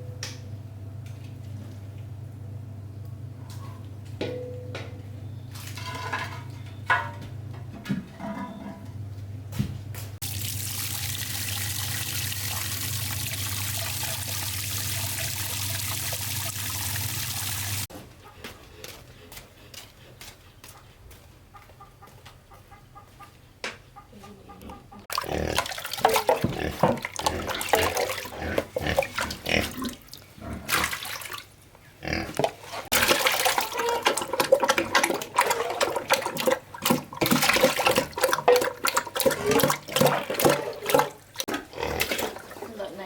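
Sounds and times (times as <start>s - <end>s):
pigs grunting and squealing: 24.5s - 31.0s, 32.0s - 42.7s.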